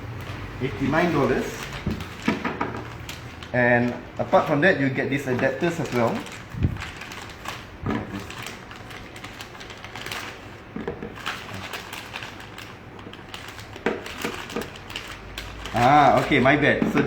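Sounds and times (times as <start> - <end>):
plastic adapters and straps clicking: 5.5 - 17.0.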